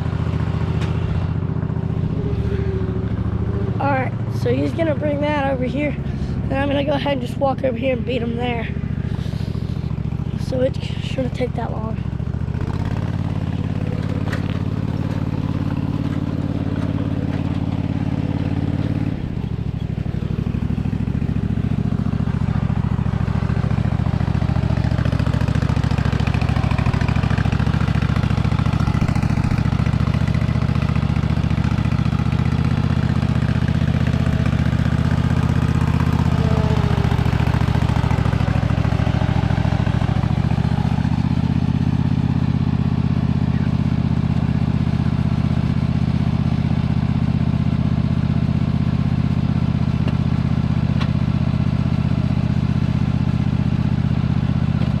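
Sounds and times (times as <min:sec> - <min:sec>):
lawnmower engine running: 0:00.0 - 0:55.0.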